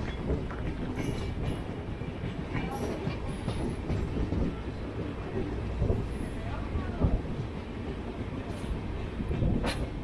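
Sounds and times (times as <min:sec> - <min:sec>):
wheels running on rails: 0:00.0 - 0:07.4
train coaches passing: 0:00.0 - 0:10.0.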